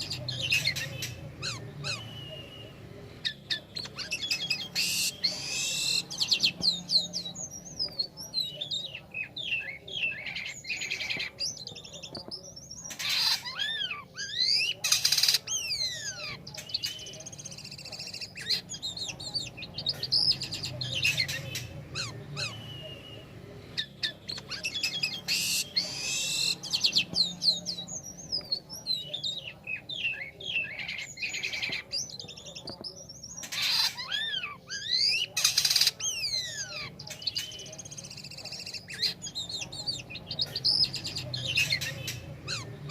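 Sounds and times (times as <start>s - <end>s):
starling singing: 0.0s - 42.9s
harsh bird screeching: 3.2s - 7.3s, 12.8s - 16.8s, 23.8s - 27.8s, 33.4s - 42.9s.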